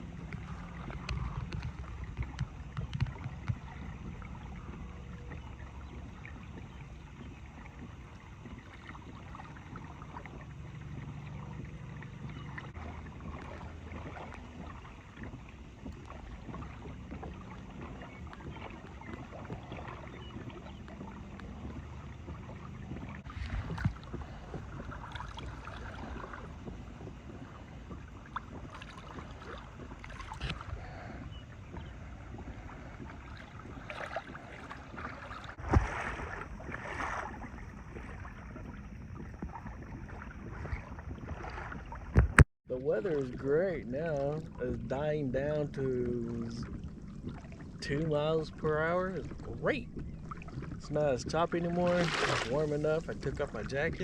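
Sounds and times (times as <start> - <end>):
knocks on hull: 0.0 - 42.4
water lapping against a kayak: 0.0 - 54.0
wind rumble on microphone: 0.0 - 54.0.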